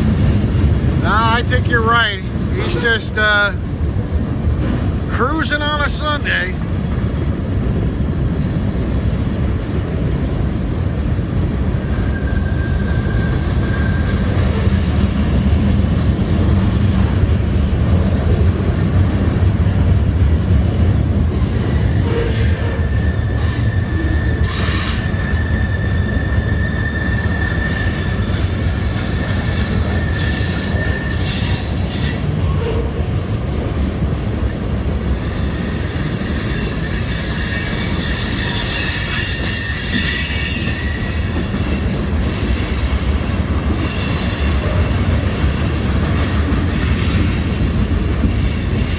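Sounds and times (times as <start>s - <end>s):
train wheel squeals: 0.0s - 1.0s, 11.8s - 15.0s, 15.9s - 16.5s, 19.3s - 32.9s, 34.9s - 48.9s
freight train rolling past: 0.0s - 48.9s.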